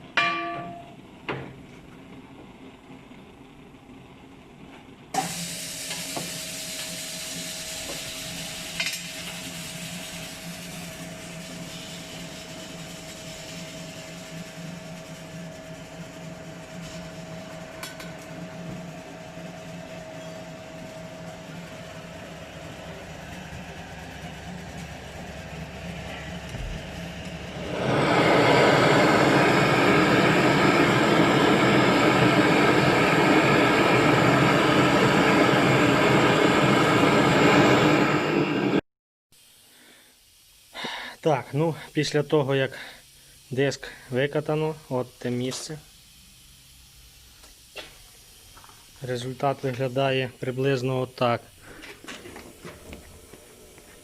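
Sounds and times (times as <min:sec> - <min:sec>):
wheel straightening machine humming: 0:00.0 - 0:38.8, 0:51.5 - 0:54.0.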